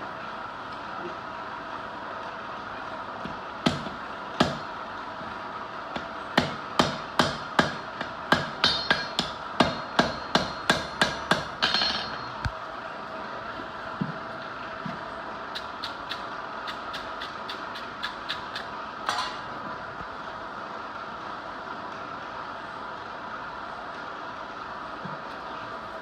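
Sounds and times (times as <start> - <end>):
steady background noise: 0.0 - 26.0
hammer striking steel on anvil: 6.4 - 12.5, 19.1 - 19.5.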